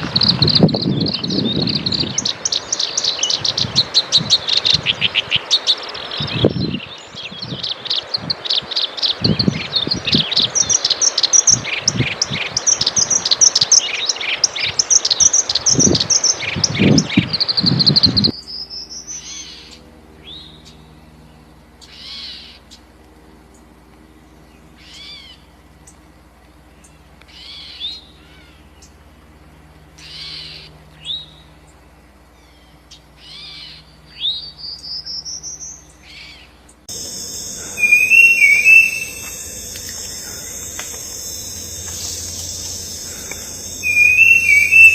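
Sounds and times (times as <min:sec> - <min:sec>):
birds chirping and twittering: 0:00.0 - 0:12.0, 0:36.9 - 0:44.9
bird rising whistles: 0:36.9 - 0:44.9
high insect trill: 0:36.9 - 0:44.9.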